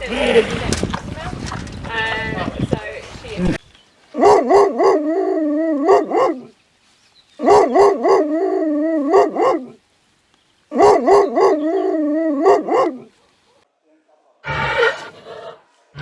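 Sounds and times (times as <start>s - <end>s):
dog yipping and howling: 4.2s - 6.5s, 7.4s - 9.8s, 10.7s - 13.1s.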